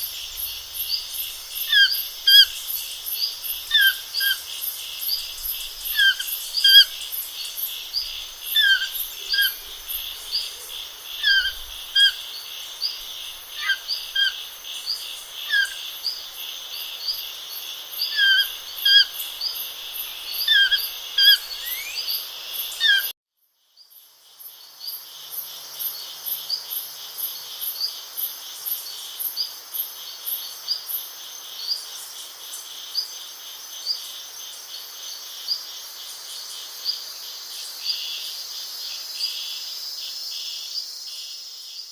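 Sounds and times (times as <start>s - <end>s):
small birds chirping: 0.0s - 16.2s, 18.0s - 23.1s
pulsing insect chorus: 0.0s - 23.1s, 23.7s - 41.9s.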